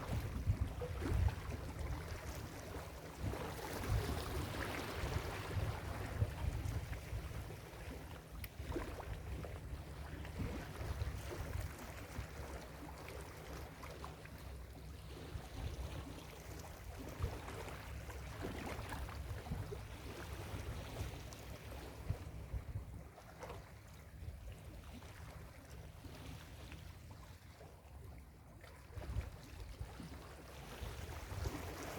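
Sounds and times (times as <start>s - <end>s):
wind buffeting microphone: 0.0s - 2.2s, 3.2s - 7.5s.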